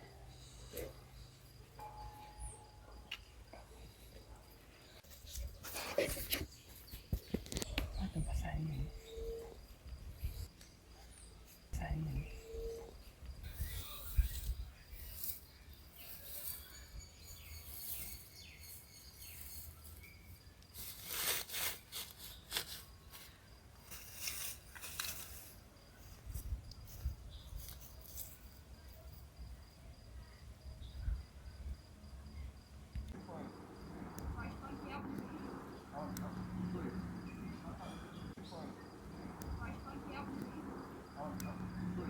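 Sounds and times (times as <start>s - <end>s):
crackles and rustles: 3.9s - 8.1s, 17.6s - 29.3s
insects trilling: 22.1s - 42.0s.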